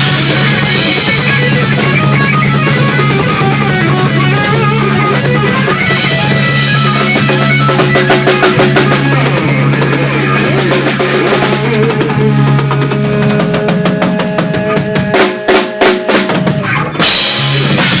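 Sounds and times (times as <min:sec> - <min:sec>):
rock band music: 0:00.0 - 0:18.0.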